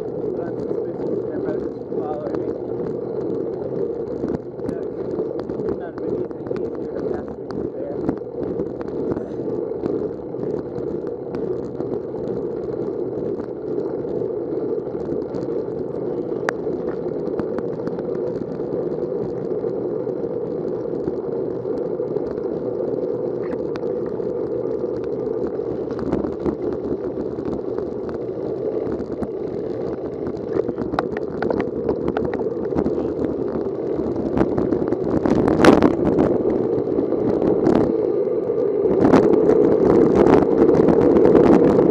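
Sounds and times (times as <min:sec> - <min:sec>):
ticks and rattles: 0:00.0 - 0:14.2, 0:23.3 - 0:37.9
wet tyres on road: 0:00.0 - 0:41.9.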